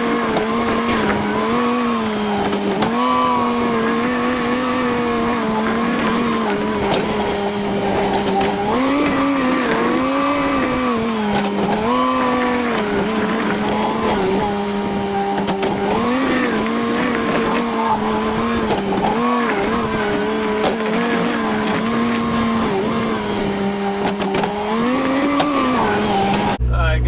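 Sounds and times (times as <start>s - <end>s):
tractor engine under load: 0.0s - 26.8s.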